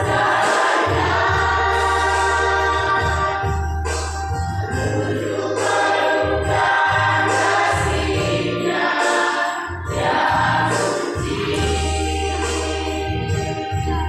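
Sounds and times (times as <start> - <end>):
choir singing: 0.0 - 3.6, 4.7 - 14.0
low bass notes: 0.0 - 5.3, 9.7 - 14.0
instrumental accompaniment: 0.0 - 14.0.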